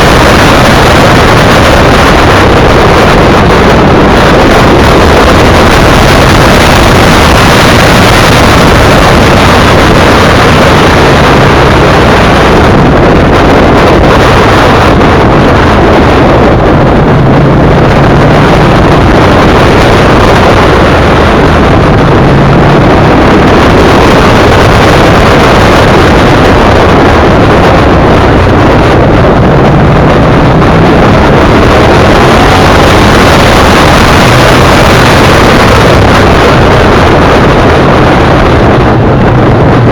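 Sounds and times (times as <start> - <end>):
motorcycle engine drone: 0.0 - 39.9
wind buffeting on microphone: 0.0 - 39.9.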